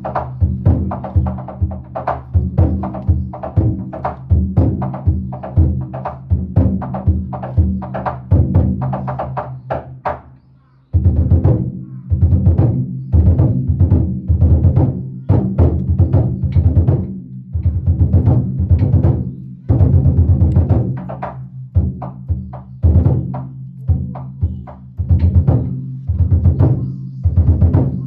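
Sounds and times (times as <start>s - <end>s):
large taiko drum beating: 0.0s - 10.2s, 11.0s - 28.0s.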